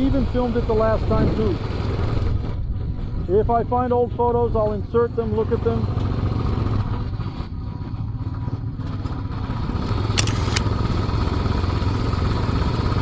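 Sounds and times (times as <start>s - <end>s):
motorcycle engine rumbling: 0.0s - 13.0s
sharp clicks: 9.9s - 10.7s.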